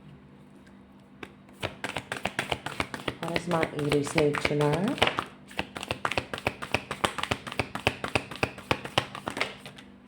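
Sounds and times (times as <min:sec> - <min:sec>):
cards being shuffled: 0:01.2 - 0:09.9.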